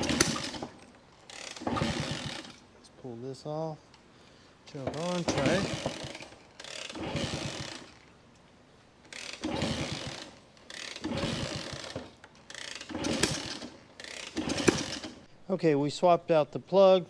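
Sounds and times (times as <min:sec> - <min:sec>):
motorcycle kick starter ratcheting: 0:00.0 - 0:02.7, 0:04.7 - 0:08.2, 0:09.0 - 0:15.3.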